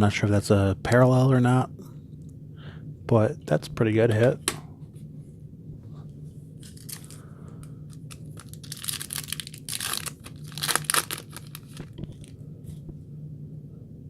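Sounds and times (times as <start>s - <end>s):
foil wrapper tearing and crinkling: 6.6s - 7.2s, 7.9s - 12.4s.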